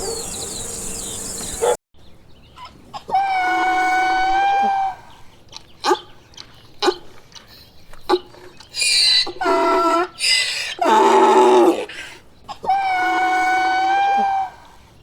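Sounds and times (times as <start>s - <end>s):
donkey braying: 0.0s - 1.8s.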